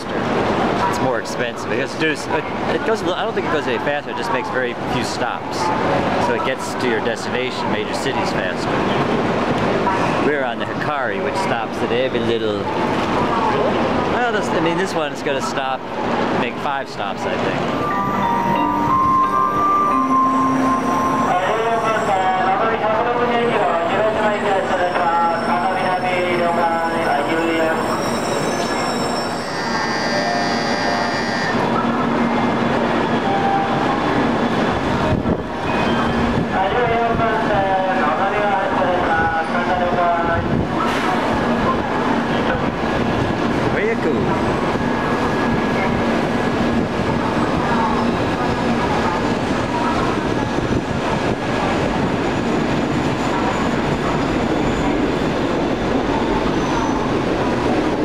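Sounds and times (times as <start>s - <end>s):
high whining train tones: 15.8s - 43.6s
faint high squealing: 24.3s - 31.6s.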